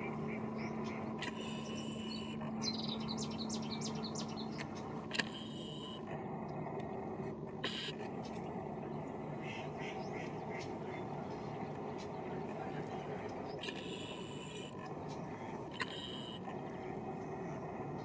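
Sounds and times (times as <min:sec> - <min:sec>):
steady low hum: 0:00.0 - 0:18.0
small bird chirping: 0:00.6 - 0:06.0.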